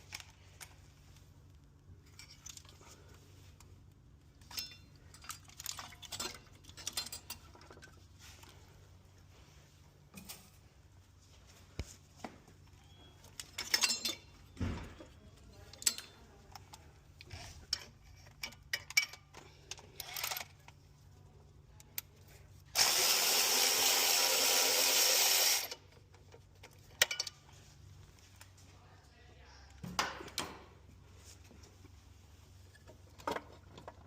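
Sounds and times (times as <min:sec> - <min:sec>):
metal tools clanking: 0:04.4 - 0:08.0, 0:12.8 - 0:16.7
power tool running: 0:22.7 - 0:25.8.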